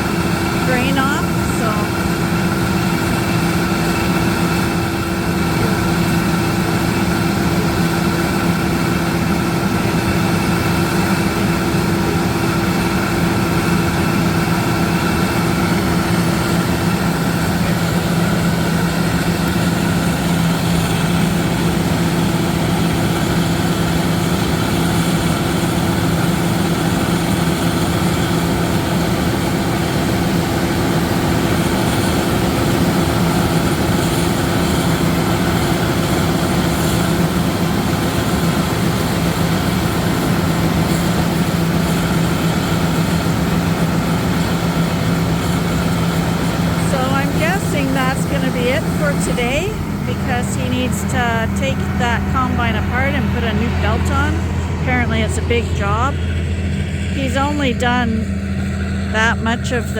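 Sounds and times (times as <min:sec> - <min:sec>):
diesel engine running steadily: 0:00.0 - 0:59.9
steady tone: 0:00.6 - 0:02.3, 0:46.8 - 0:58.5, 0:59.1 - 0:59.9.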